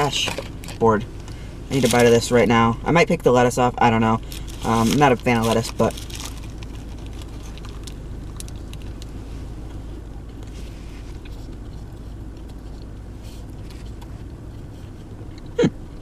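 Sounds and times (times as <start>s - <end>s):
car engine and heater hum: 0.0s - 16.0s
chewing and mouth clicks: 11.1s - 16.0s.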